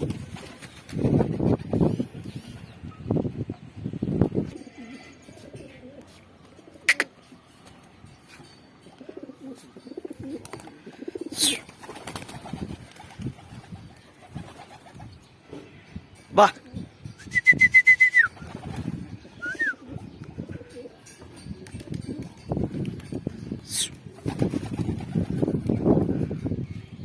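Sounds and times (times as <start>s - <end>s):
pigeons cooing: 4.5s - 7.3s, 9.0s - 12.3s, 18.4s - 22.2s.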